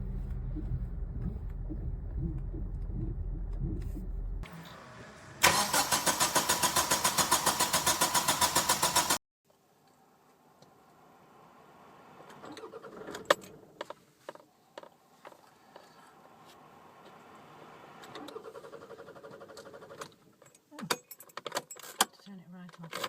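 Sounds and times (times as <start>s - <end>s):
engine cranking without starting: 0.0s - 9.2s, 12.3s - 14.0s, 17.8s - 20.4s.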